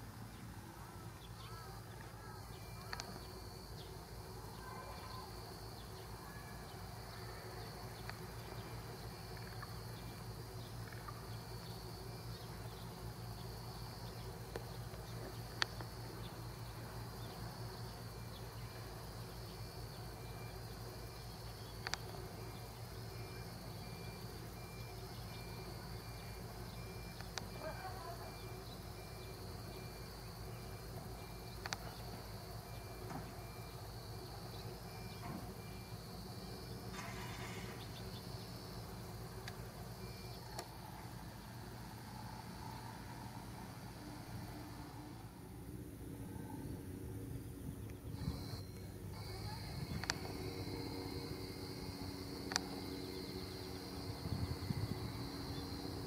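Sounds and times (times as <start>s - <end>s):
insects chirping in chorus: 0.0s - 56.0s
pulsing insect call: 0.0s - 56.0s
steady low hum: 0.0s - 56.0s
sharp clicks: 2.8s - 3.4s, 8.0s - 8.3s, 21.8s - 22.2s, 27.1s - 27.6s, 31.5s - 32.1s, 40.3s - 40.7s, 49.8s - 50.4s, 52.4s - 52.8s.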